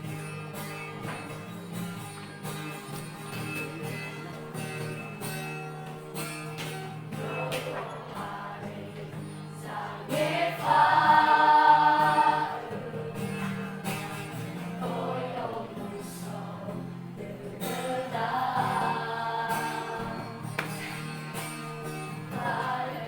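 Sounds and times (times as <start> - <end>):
vocal group singing worship song: 7.1 - 20.6, 22.2 - 23.0.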